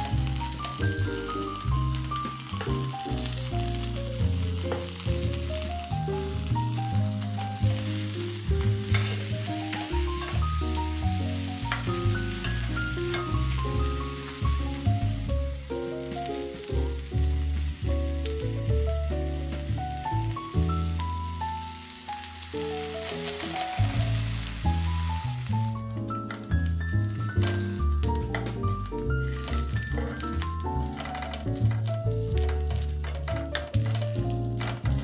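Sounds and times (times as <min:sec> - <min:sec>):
background music with bass line: 0:00.0 - 0:35.0
food sizzling in a frying pan: 0:00.0 - 0:35.0.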